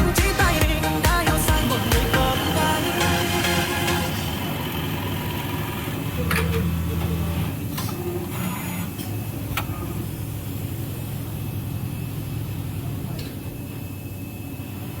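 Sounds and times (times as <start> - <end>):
industrial sewing machine humming: 0.0 - 15.0.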